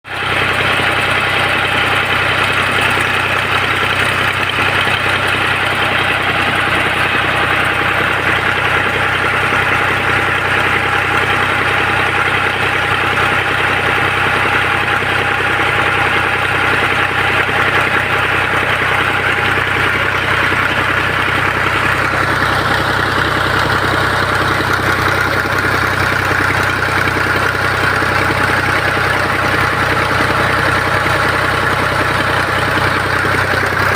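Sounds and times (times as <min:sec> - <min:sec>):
tractor engine running steadily: 0:00.0 - 0:33.9.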